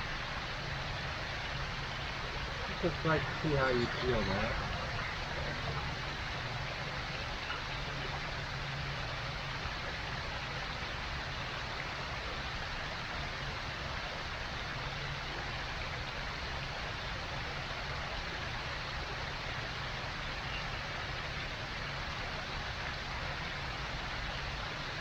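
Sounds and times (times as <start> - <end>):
steady rushing noise: 0.0 - 9.3.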